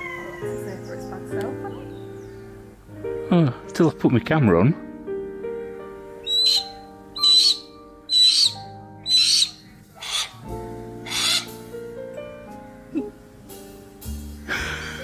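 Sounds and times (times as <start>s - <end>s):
background music: 0.0s - 15.0s
bird of prey calling: 6.2s - 11.6s.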